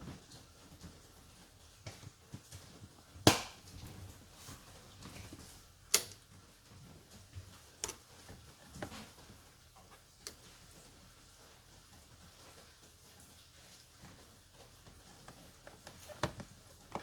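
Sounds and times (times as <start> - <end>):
faint clicks and knocks: 3.7 - 17.0.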